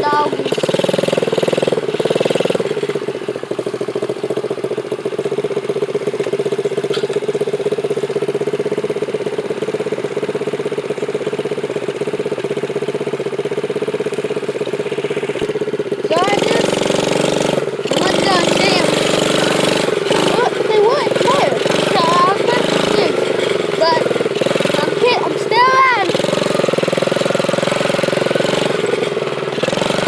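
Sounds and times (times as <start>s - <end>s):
dirt bike engine running: 0.0s - 30.0s.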